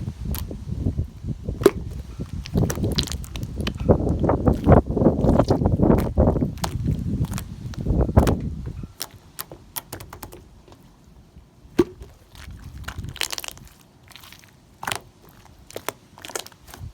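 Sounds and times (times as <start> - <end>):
slime squishing: 0.0 - 11.0, 11.7 - 16.9
slime crackling and popping: 1.5 - 8.4, 11.8 - 16.9.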